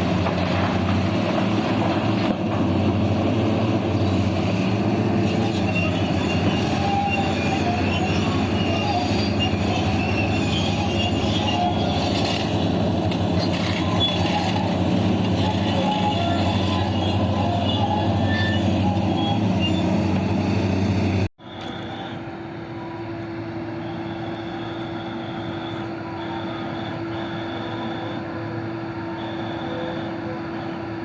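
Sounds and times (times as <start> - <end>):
diesel machinery droning: 0.0 - 31.0
high metallic squeals: 3.7 - 23.2.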